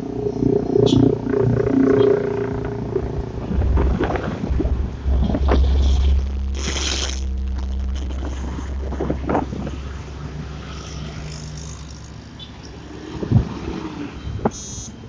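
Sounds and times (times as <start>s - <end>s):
road traffic passing: 0.0s - 15.0s
wind buffeting microphone: 1.2s - 10.7s.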